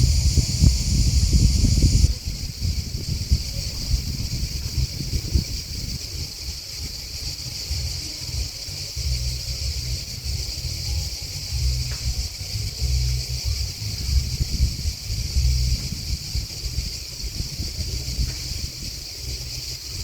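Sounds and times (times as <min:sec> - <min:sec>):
grasshoppers and crickets chirping: 0:00.0 - 0:20.0
low rumble: 0:07.7 - 0:20.0.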